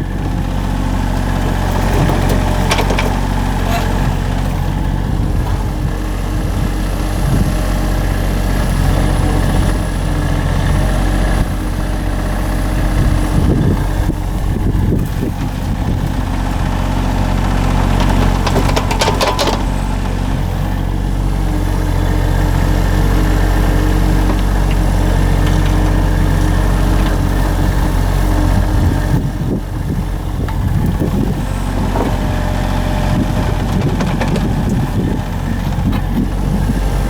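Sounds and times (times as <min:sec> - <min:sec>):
small engine running: 0:00.0 - 0:37.0
rattling and scraping: 0:01.0 - 0:06.6, 0:12.7 - 0:21.4.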